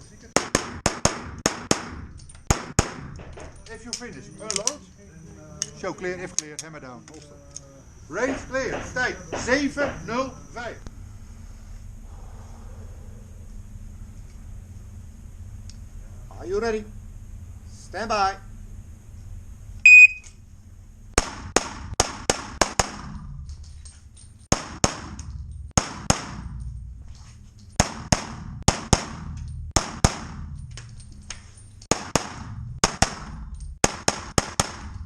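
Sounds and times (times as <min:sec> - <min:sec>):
shot timer beep: 0:19.8 - 0:20.3
handgun shots: 0:31.9 - 0:35.0.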